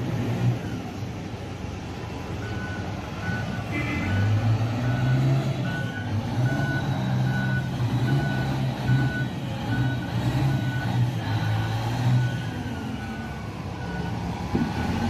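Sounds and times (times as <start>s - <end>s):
diesel engine running: 0.0s - 15.0s
reversing alarm beeping: 2.4s - 15.0s.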